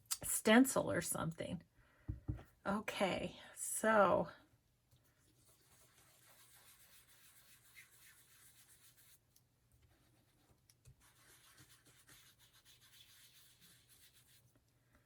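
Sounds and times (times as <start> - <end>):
foam pad rubbing on paper: 5.4 - 9.2, 11.0 - 14.5.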